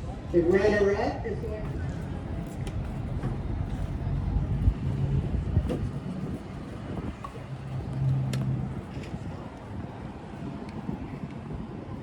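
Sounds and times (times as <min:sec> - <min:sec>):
car engine rumbling: 0:01.3 - 0:11.0.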